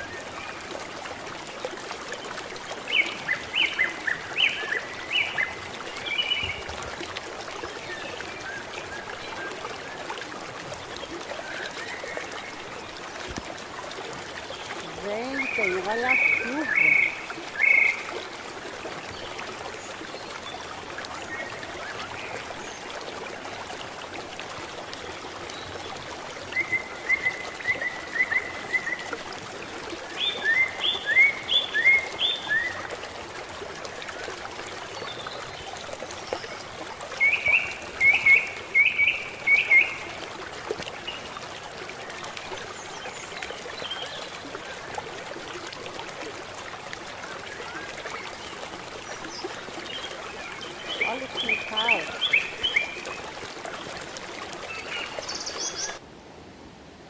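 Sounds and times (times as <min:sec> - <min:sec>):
water running off: 0:14.7 - 0:17.2, 0:50.9 - 0:52.4.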